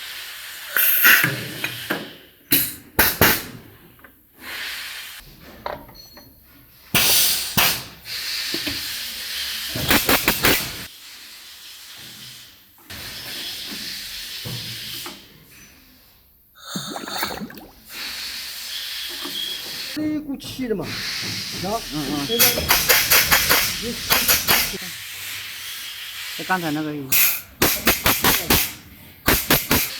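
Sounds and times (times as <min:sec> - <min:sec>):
compressed air hissing: 0:16.6 - 0:29.9.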